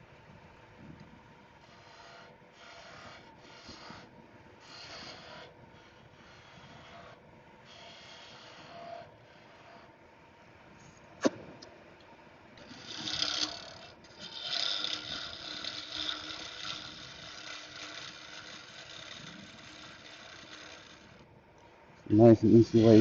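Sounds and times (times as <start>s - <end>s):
gouge scraping turning wood: 1.6s - 10.0s, 12.6s - 21.3s, 22.5s - 23.0s.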